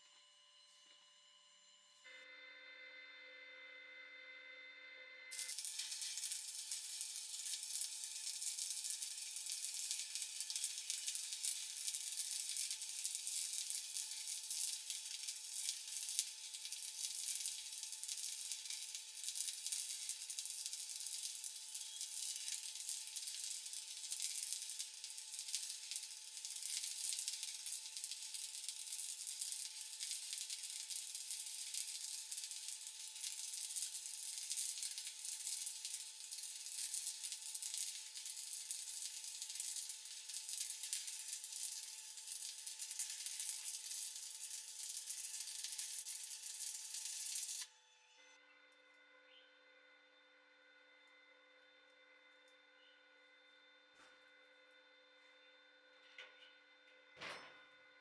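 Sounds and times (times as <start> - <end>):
welding arc crackling: 5.3 - 47.7.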